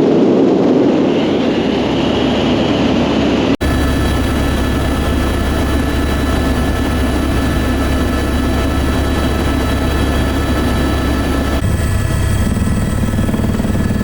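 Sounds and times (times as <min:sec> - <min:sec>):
helicopter rotor and turbine noise: 0:00.0 - 0:14.0.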